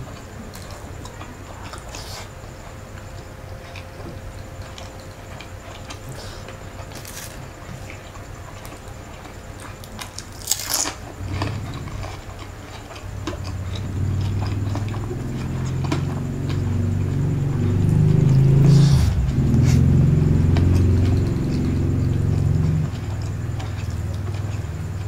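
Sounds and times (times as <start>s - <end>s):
chewing with wet mouth clicks: 3.0s - 18.3s, 20.5s - 25.0s
crunchy bite: 4.7s - 25.0s
low rumble: 11.2s - 25.0s.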